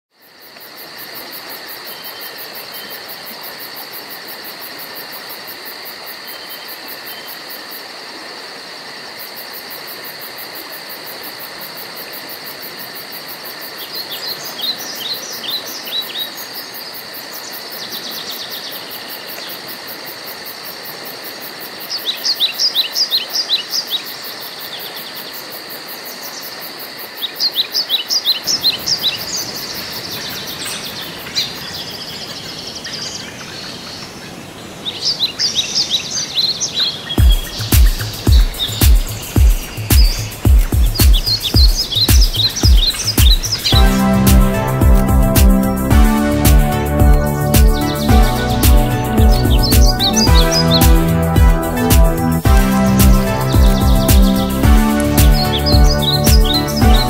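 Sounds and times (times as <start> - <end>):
bird calling in quick notes: 37.2 - 57.0
high insect drone pulsing: 37.2 - 57.0.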